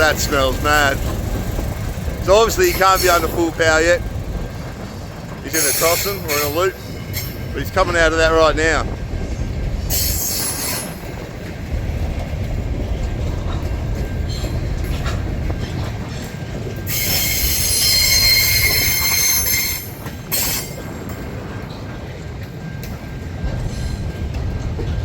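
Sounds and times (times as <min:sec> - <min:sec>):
low rumble of moving train: 0:00.0 - 0:25.0
train wheels squealing on rails: 0:00.0 - 0:25.0.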